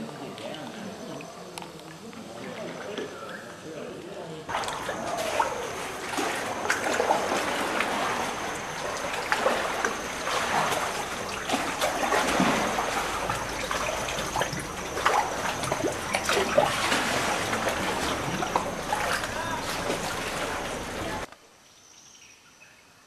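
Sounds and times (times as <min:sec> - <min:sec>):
sea water trickling and splashing: 0:04.5 - 0:21.3
small splashes and drips: 0:04.5 - 0:21.3.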